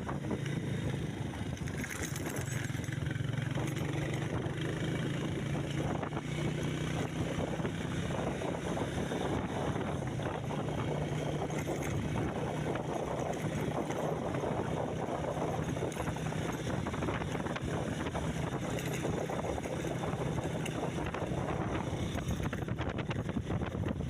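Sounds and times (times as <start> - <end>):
vehicle engine humming: 0.0 - 24.0
wind buffeting microphone: 0.0 - 24.0.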